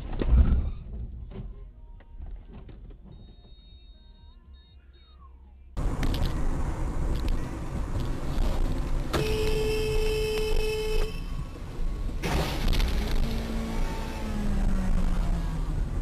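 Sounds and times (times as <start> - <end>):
road and engine noise: 0.9 - 16.0
car horn: 9.1 - 11.5.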